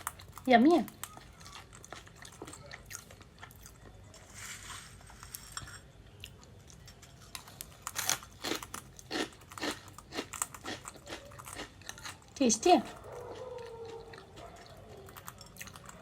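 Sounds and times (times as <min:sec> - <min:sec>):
parrot crunching food: 0:00.0 - 0:16.0.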